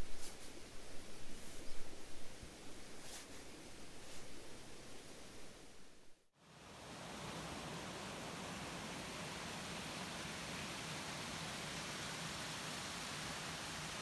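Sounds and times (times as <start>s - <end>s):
stream flowing over stones: 6.9s - 14.0s.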